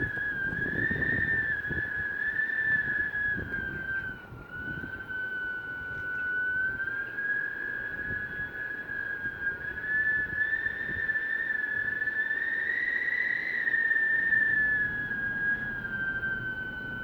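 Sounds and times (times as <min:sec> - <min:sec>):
low rushing wind: 0:00.0 - 0:17.0
wind whistling through door gap: 0:00.0 - 0:17.0.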